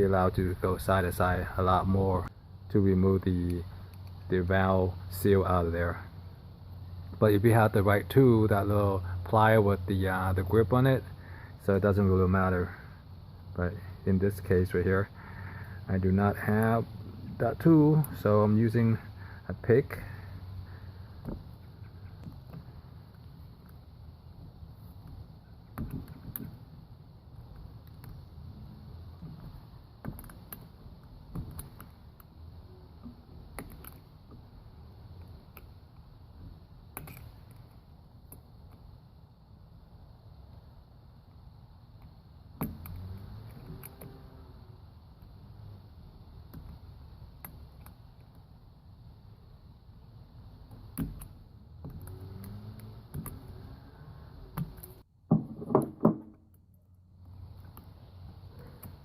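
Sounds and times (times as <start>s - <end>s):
low background hum: 0.0s - 59.0s
pick tool clicking and scraping: 33.5s - 34.1s, 36.9s - 38.8s, 42.0s - 44.1s.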